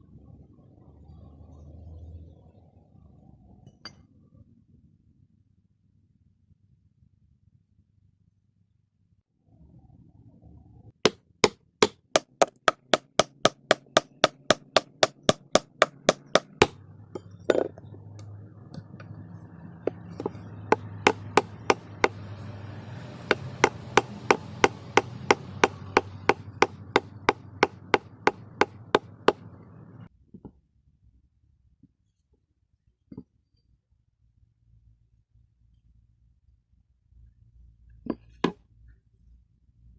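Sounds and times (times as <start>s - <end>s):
dull knock: 11.1s - 16.8s, 19.9s - 22.2s, 23.3s - 29.4s
fast hammer blows: 11.1s - 16.8s, 20.0s - 22.4s, 23.2s - 29.4s.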